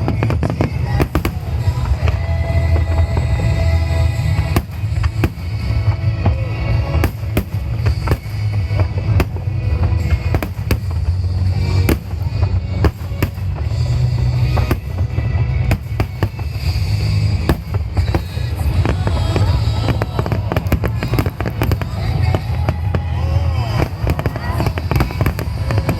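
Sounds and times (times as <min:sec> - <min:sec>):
deep rumble: 0:00.0 - 0:25.9
fireworks bursting: 0:00.0 - 0:25.9.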